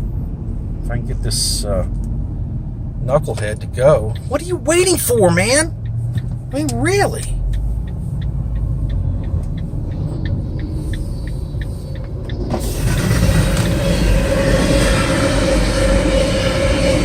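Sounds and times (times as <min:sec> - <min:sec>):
low rumble of car: 0:00.0 - 0:17.0
car turn signal clicking: 0:05.8 - 0:12.6
steady rushing noise with tone: 0:07.7 - 0:17.0.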